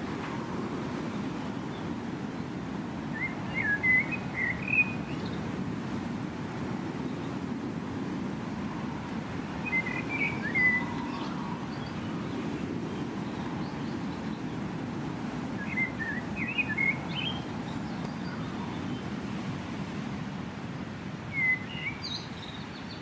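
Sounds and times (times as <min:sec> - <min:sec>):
small birds chirping: 0:03.2 - 0:05.5, 0:09.6 - 0:14.7, 0:15.6 - 0:19.2.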